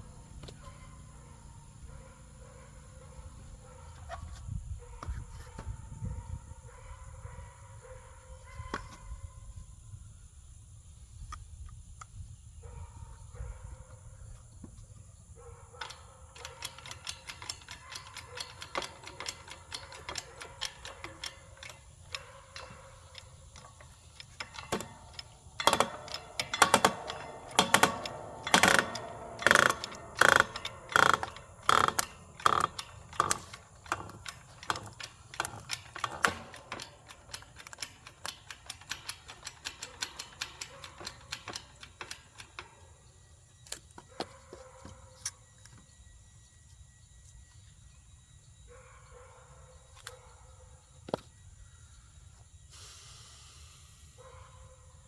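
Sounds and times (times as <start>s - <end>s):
hydraulic pump clicking: 15.8s - 45.8s.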